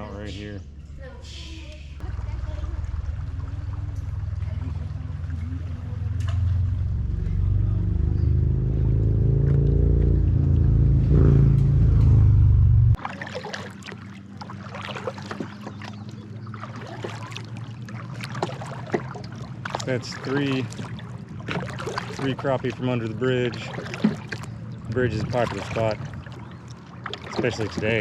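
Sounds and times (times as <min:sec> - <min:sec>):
engine rumble with rising hum: 0:01.9 - 0:13.0.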